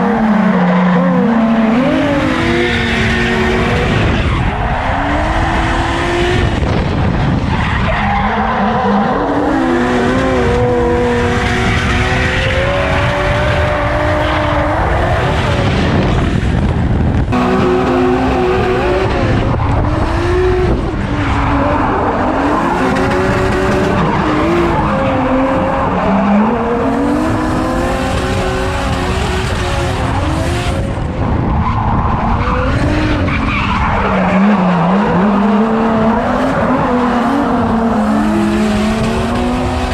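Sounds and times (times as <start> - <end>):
tyres skidding and squealing: 0.0 - 16.8, 31.0 - 39.9
car engine revving: 0.0 - 39.9.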